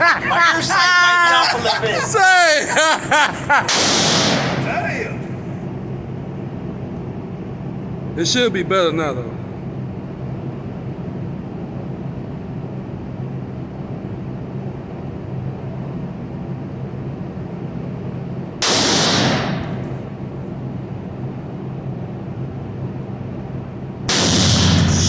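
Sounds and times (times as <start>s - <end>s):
steady low hum: 0.0s - 25.0s
loud gunshot: 3.7s - 4.8s, 18.6s - 19.8s, 24.1s - 25.0s.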